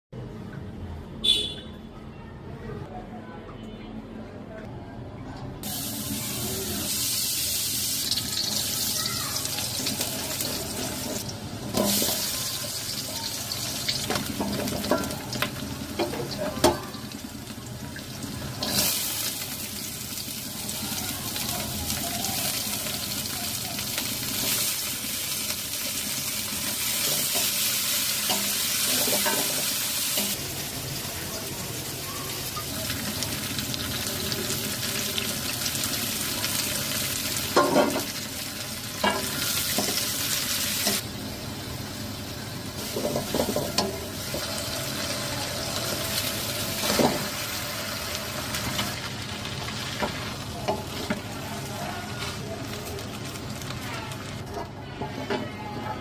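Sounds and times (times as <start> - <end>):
food sizzling in a pan: 5.6 - 55.6
utensil stirring food: 20.7 - 30.6, 42.7 - 56.0.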